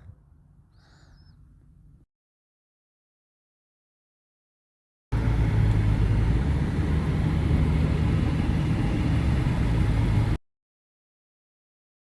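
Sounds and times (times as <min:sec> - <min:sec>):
car engine running: 0:05.2 - 0:10.4.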